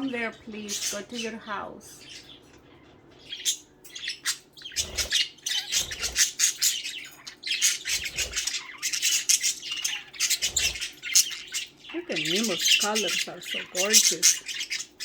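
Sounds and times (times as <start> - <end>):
budgerigars chattering and squawking: 0.0 - 15.0.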